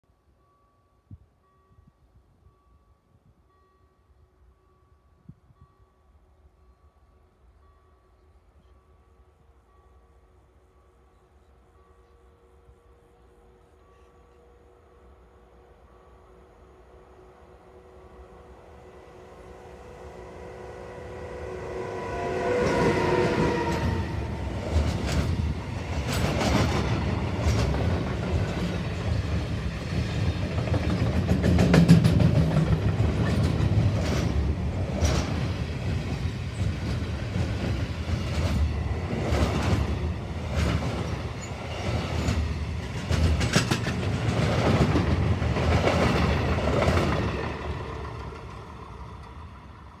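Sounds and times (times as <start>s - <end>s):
electric locomotive whine: 0.3s - 50.0s
train wheels clattering on rails: 22.2s - 50.0s.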